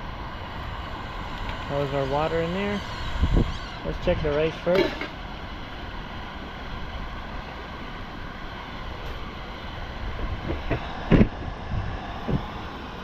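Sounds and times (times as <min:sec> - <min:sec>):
wind on microphone: 0:01.9 - 0:04.3, 0:10.0 - 0:12.7.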